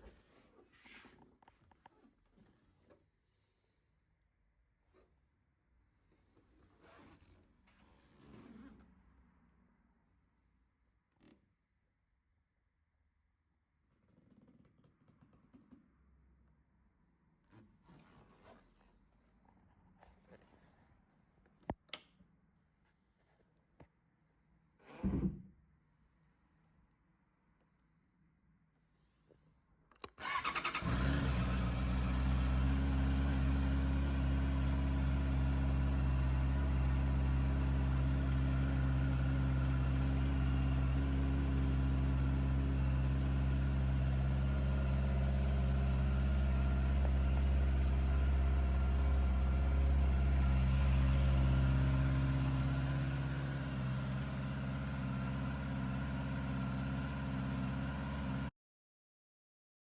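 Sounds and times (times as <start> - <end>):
motorcycle engine idling: 30.2 - 58.5.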